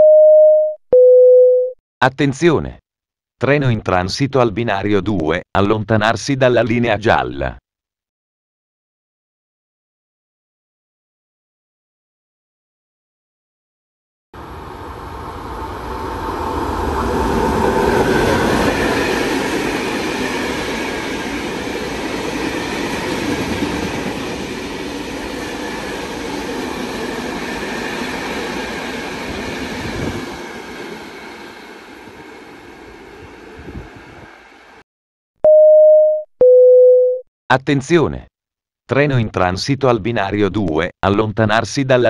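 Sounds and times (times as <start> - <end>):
train wheel and rail noise: 14.4 - 34.8.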